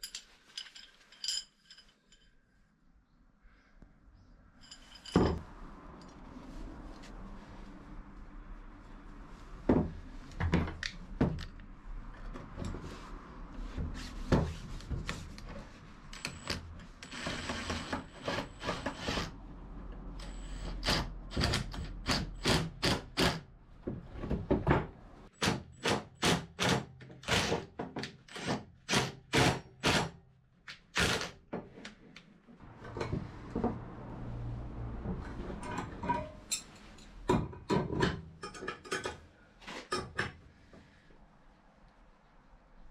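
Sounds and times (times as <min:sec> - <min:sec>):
knocks and clunks of hard objects: 0:09.7 - 0:11.5, 0:23.8 - 0:26.0, 0:37.3 - 0:39.2.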